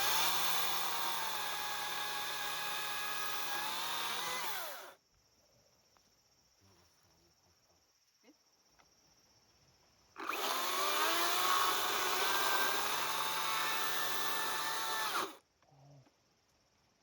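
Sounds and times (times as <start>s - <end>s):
electric power tool motor: 0.0s - 5.0s, 10.2s - 15.4s.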